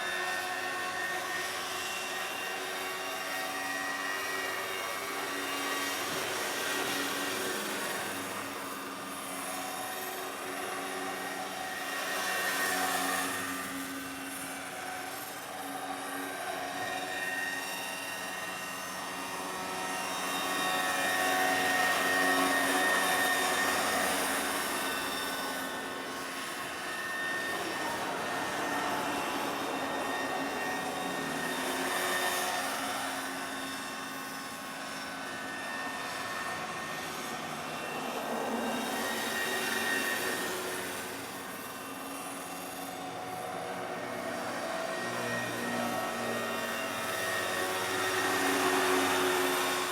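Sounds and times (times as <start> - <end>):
model helicopter rotors whining: 0.0 - 49.9.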